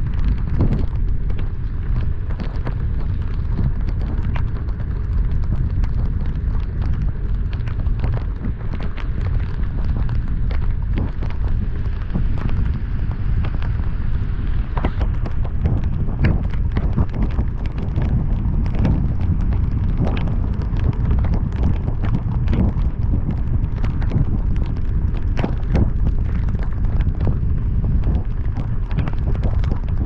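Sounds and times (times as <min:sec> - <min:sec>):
raindrops tapping: 0:00.0 - 0:30.0
road and wind noise: 0:00.0 - 0:30.0.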